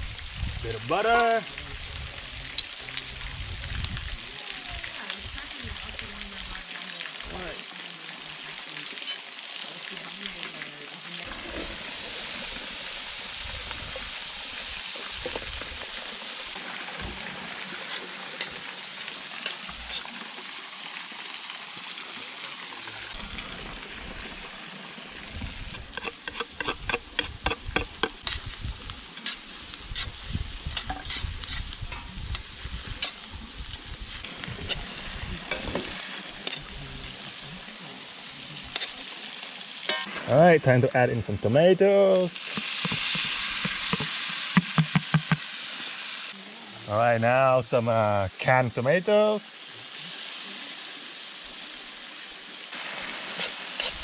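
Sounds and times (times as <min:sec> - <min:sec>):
food sizzling in a frying pan: 0:00.0 - 0:54.0
utensil scraping a pan: 0:25.7 - 0:28.5, 0:29.2 - 0:33.3, 0:42.5 - 0:45.3, 0:53.3 - 0:54.0.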